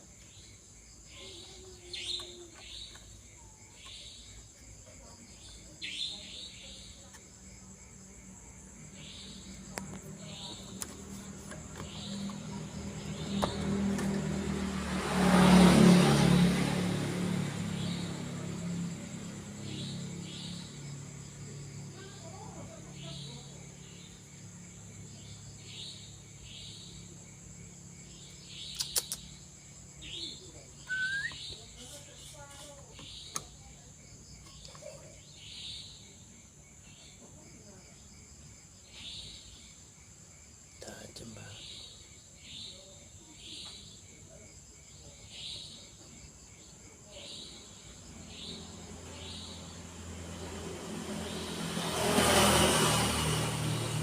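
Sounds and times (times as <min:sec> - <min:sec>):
crickets chirping: 0:00.0 - 0:54.0
vehicle passing by: 0:08.3 - 0:28.6, 0:47.3 - 0:54.0
sharp click: 0:28.8 - 0:29.2.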